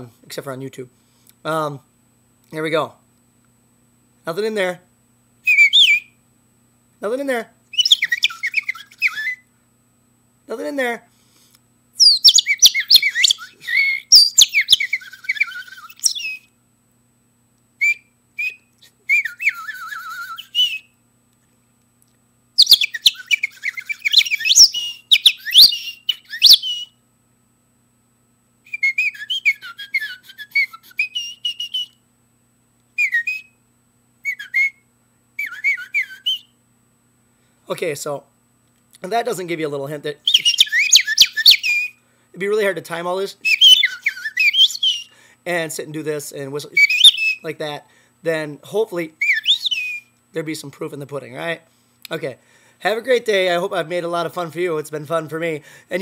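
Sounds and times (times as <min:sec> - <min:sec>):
man whistling birdsong imitations: 0:05.4 - 0:06.2, 0:07.7 - 0:09.5, 0:12.0 - 0:16.5, 0:17.8 - 0:21.0, 0:22.6 - 0:27.0, 0:28.7 - 0:32.0, 0:33.0 - 0:33.6, 0:34.2 - 0:36.6, 0:40.2 - 0:42.0, 0:43.4 - 0:45.2, 0:46.7 - 0:47.4, 0:49.2 - 0:50.2.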